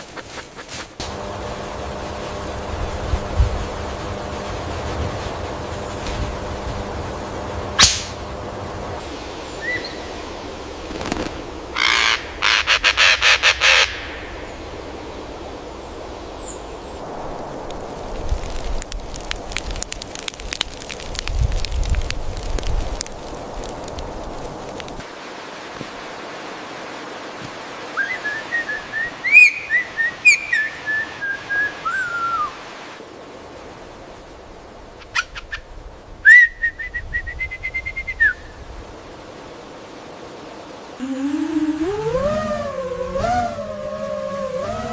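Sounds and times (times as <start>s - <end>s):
steady outdoor hiss: 0.0s - 44.9s
bird harsh raspy calls: 11.8s - 14.1s
bird whistling: 28.0s - 32.6s, 36.2s - 38.5s.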